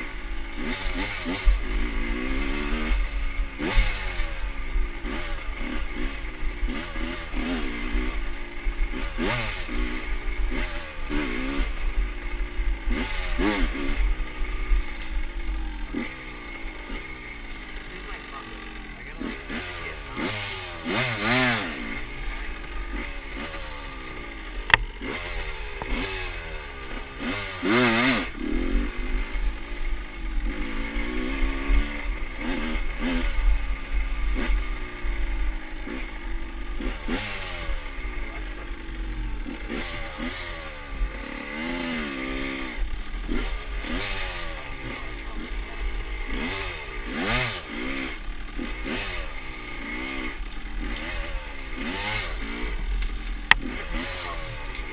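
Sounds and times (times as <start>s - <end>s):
motorcycle engine revving: 0.0s - 54.9s
sharp click: 24.7s - 24.9s.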